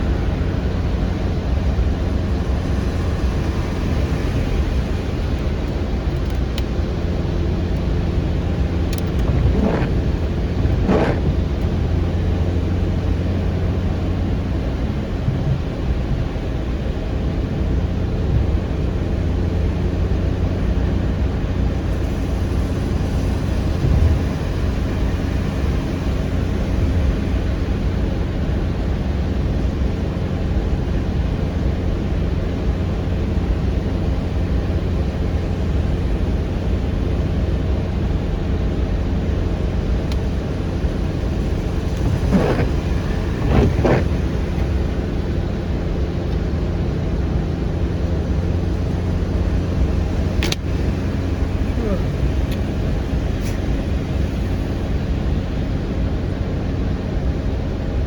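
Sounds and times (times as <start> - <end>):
car road and engine noise: 0.0 - 58.0
short squeaky sweeps: 41.9 - 44.7.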